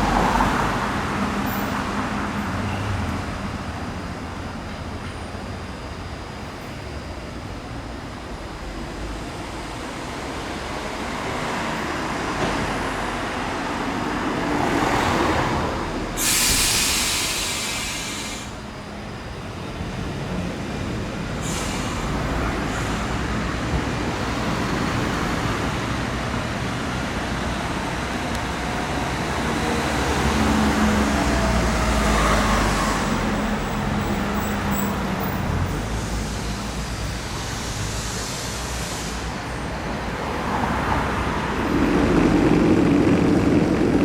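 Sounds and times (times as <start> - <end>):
tram rumbling on rails: 0.0 - 44.0
loud hiss: 16.1 - 18.7, 35.7 - 39.9.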